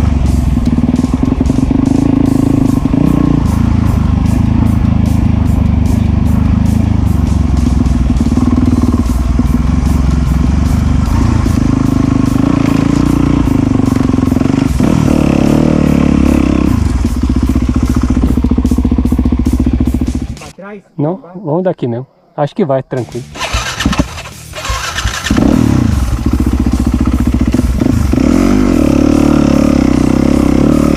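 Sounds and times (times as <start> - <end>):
dirt bike engine revving: 0.0 - 20.5, 23.1 - 30.9.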